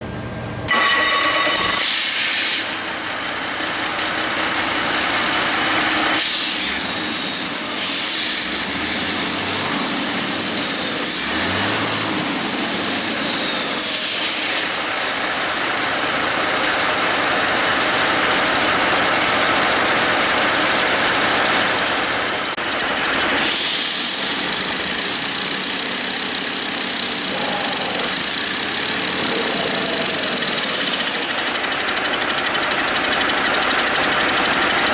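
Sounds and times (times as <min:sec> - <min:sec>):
diesel engine running: 0:00.0 - 0:34.9
loud hiss: 0:01.7 - 0:02.8, 0:06.2 - 0:15.4, 0:23.4 - 0:31.5.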